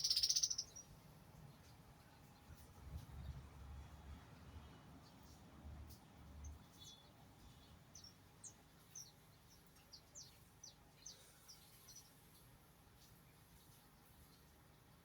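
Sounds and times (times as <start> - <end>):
faint high bird chirps: 0.0 - 0.9.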